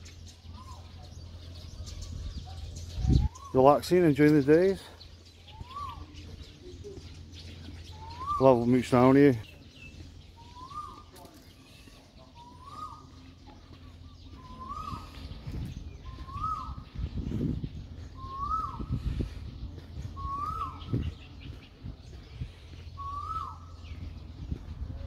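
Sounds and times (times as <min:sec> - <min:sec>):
bird calling: 0:00.0 - 0:25.0
low rumbling bursts: 0:12.4 - 0:25.0.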